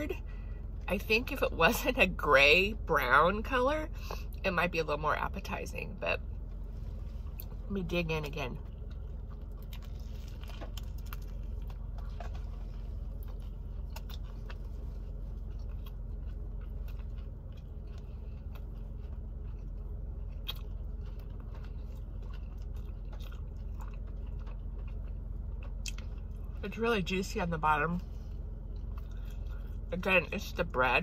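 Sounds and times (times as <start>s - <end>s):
steady low hum: 0.0s - 31.0s
person biting and chewing: 8.7s - 26.5s.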